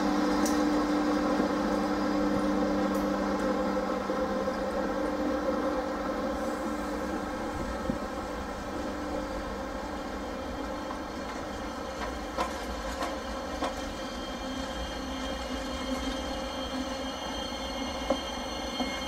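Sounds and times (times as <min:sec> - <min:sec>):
train coaches rolling past: 0:00.0 - 0:19.0
faint high wheel squeal: 0:10.0 - 0:19.0
wheels clicking over rail joints: 0:10.7 - 0:14.1.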